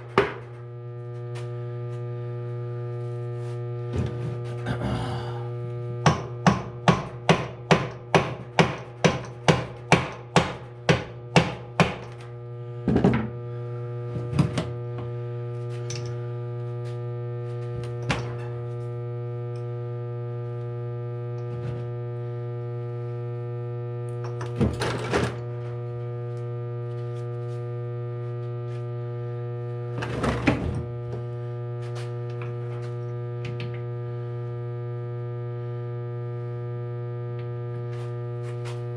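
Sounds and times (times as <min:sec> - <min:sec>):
steady electrical hum: 0:00.0 - 0:38.9
tool tapping on metal: 0:06.0 - 0:12.2
tool knocks and clunks: 0:12.9 - 0:13.3.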